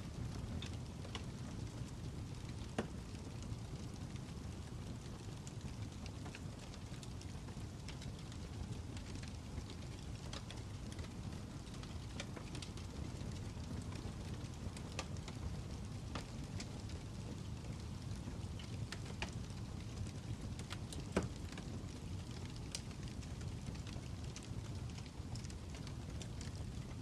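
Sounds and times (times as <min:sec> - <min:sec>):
fire crackling: 0:00.0 - 0:27.0.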